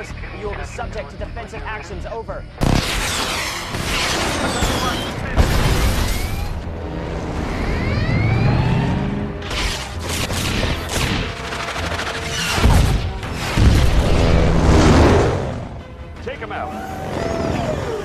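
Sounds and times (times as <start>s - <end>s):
film score music: 0.0s - 18.0s
missiles launching: 2.6s - 6.6s.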